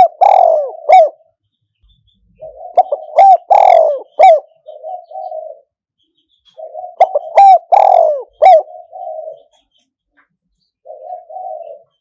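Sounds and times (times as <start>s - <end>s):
dove cooing: 0.0s - 1.3s, 2.4s - 5.8s, 6.5s - 9.6s, 10.8s - 12.0s.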